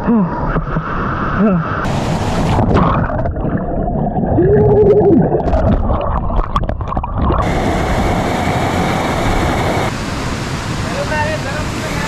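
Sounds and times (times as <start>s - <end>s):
underwater churning and bubbling: 0.0s - 10.9s
waterfall rushing: 1.8s - 2.8s, 7.4s - 12.0s.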